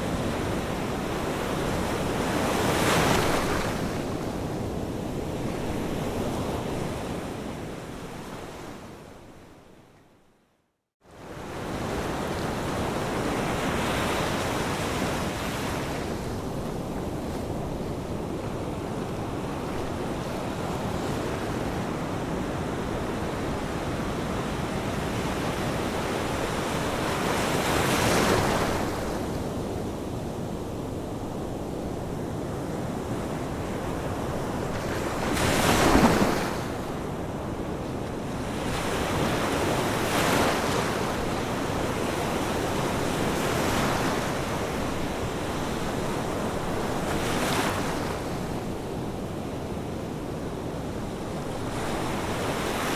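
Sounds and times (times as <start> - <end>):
ocean waves breaking on shore: 0.0 - 8.8, 11.1 - 52.9
surf wash: 33.5 - 37.3.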